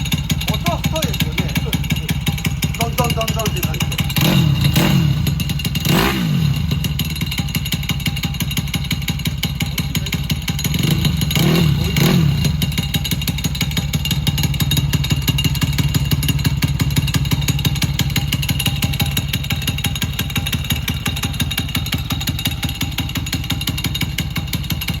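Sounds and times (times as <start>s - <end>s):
motorcycle engine idling and revving: 0.0s - 25.0s.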